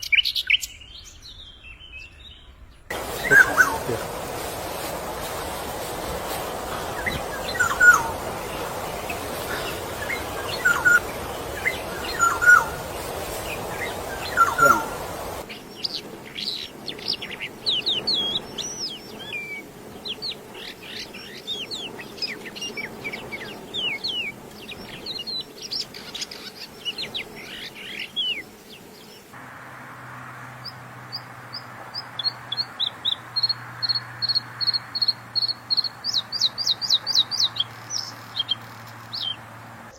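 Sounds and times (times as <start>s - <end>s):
songbird calls: 0.0s - 29.3s.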